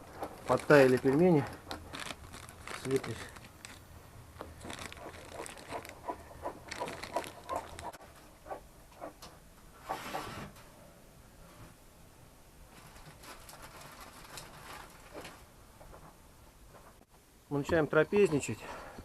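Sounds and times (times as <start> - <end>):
rustling: 0.0 - 10.7, 12.6 - 17.0.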